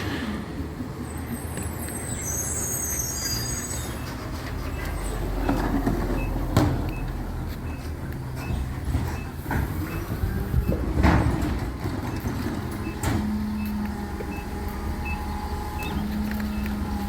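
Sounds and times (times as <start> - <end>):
high squeals: 1.0 - 5.2
truck diesel engine running: 4.1 - 17.0.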